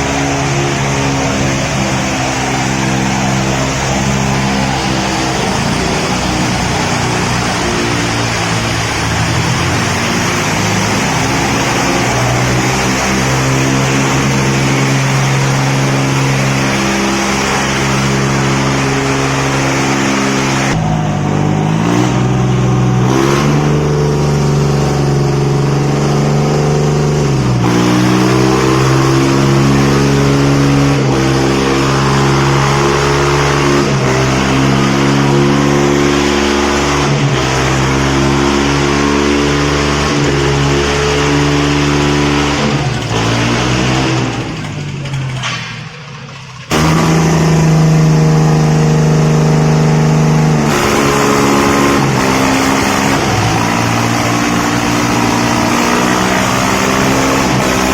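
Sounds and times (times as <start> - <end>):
tractor engines under heavy load: 0.0 - 57.9.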